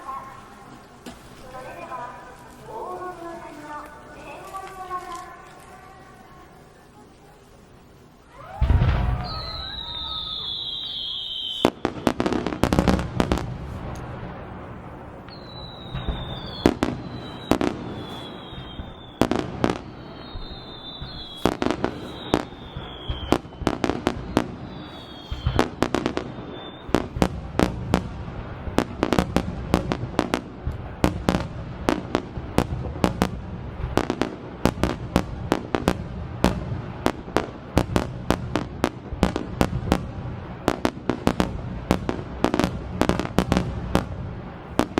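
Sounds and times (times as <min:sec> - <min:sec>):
fireworks bangs: 0:00.0 - 0:44.9
falling firework whistles: 0:08.2 - 0:14.2, 0:14.9 - 0:35.2.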